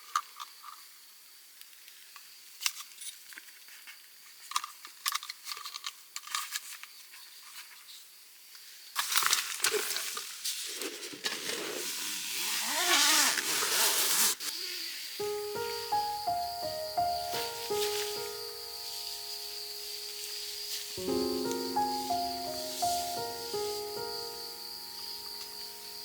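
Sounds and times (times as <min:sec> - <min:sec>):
insect chirring: 0:15.2 - 0:26.0
crinkling rustling noise: 0:16.7 - 0:26.0.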